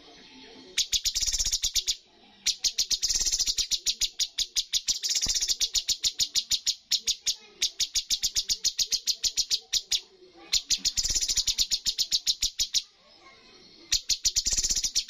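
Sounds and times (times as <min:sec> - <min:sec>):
songbird rapid repeated notes: 0:00.8 - 0:12.9, 0:14.0 - 0:15.0.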